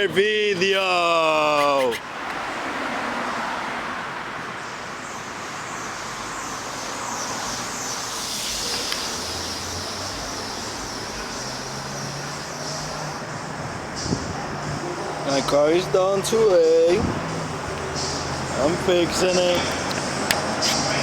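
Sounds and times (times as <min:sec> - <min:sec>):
road traffic hiss: 0:00.2 - 0:21.0
faint low engine hum: 0:07.8 - 0:21.0.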